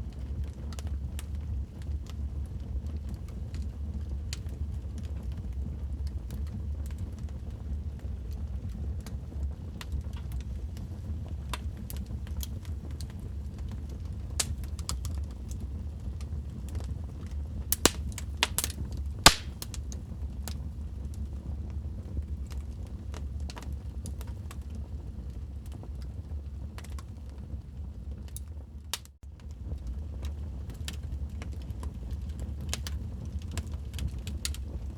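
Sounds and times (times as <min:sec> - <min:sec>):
wood fire crackling: 0:09.8 - 0:27.2, 0:28.2 - 0:34.9.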